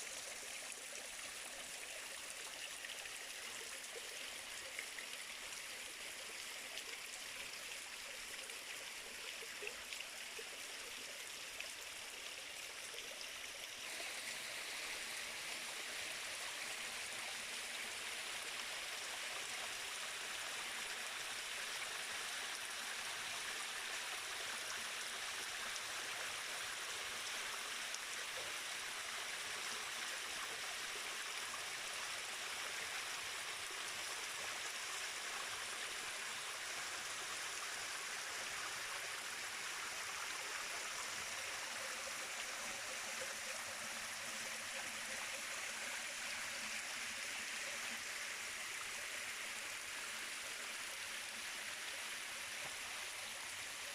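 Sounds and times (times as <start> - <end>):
stream water rushing: 13.7 - 28.7, 31.4 - 53.9.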